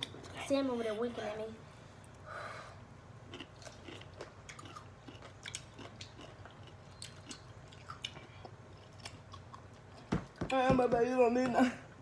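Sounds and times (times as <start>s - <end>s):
pickle crunching: 3.2s - 10.1s.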